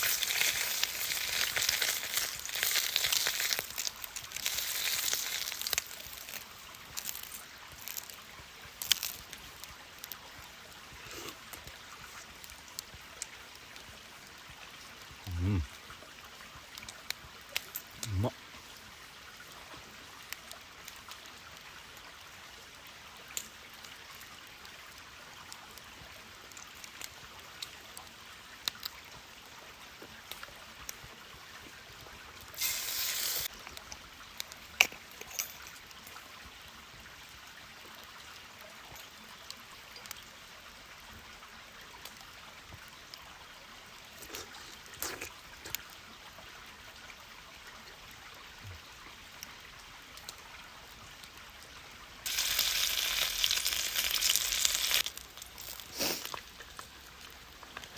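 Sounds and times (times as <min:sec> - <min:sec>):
campfire crackling: 0:00.0 - 0:36.3, 0:52.2 - 0:57.9.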